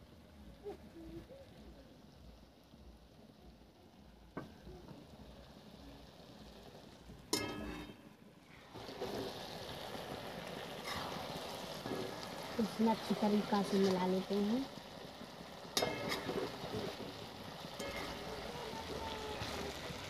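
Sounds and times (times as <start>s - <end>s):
food sizzling: 0.0s - 20.0s
steel plate clanking on metal: 7.4s - 7.9s, 15.8s - 17.0s, 17.8s - 18.2s.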